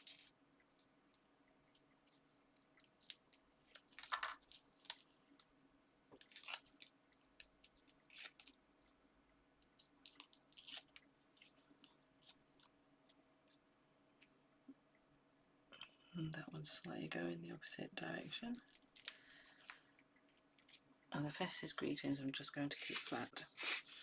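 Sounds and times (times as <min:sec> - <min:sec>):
paper and card crinkling: 0:00.0 - 0:00.9, 0:01.7 - 0:05.5, 0:06.2 - 0:08.6, 0:09.8 - 0:13.6, 0:18.6 - 0:20.8, 0:22.7 - 0:24.0.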